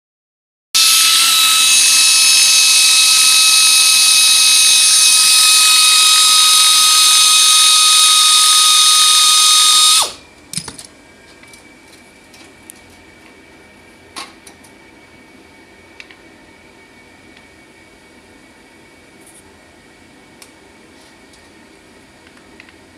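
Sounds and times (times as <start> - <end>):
power tool high-pitched whine: 0.8 - 10.2.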